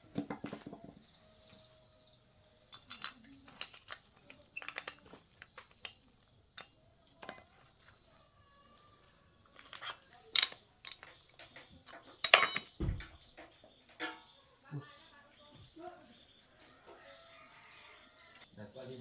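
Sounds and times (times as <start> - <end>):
metal tools clinking: 2.7 - 8.1, 9.5 - 14.5
metal clatter with dull thump: 9.6 - 14.4.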